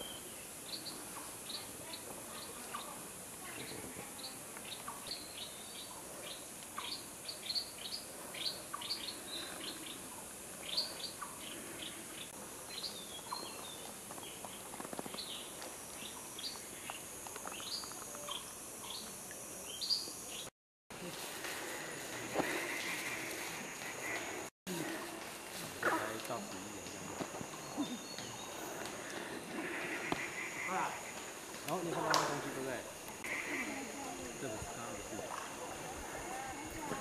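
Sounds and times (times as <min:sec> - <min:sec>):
small birds chirping: 0:00.0 - 0:20.5, 0:27.5 - 0:30.5
steady high hiss: 0:00.0 - 0:37.0.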